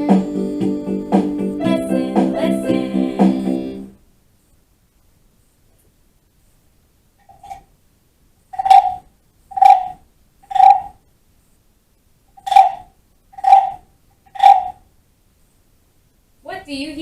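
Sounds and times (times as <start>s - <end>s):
wooden guiro rasping croaks: 7.2s - 7.7s, 8.5s - 11.0s, 12.3s - 14.9s.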